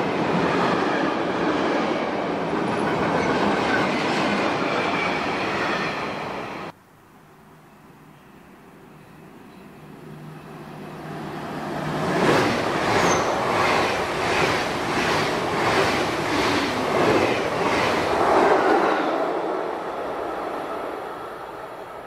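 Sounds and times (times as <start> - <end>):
train passing at speed: 0.0 - 6.8, 9.0 - 22.0
train wheels clattering over rails: 11.8 - 18.8.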